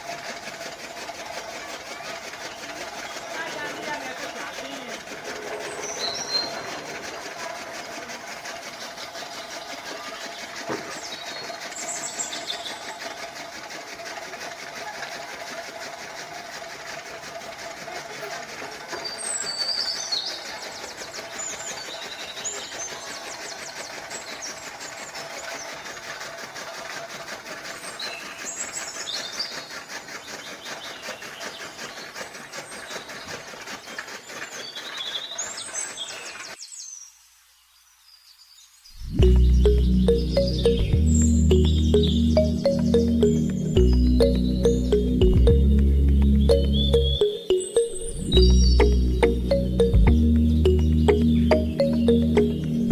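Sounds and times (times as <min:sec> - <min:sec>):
birds chirping: 0:02.5 - 0:07.3, 0:38.9 - 0:52.9.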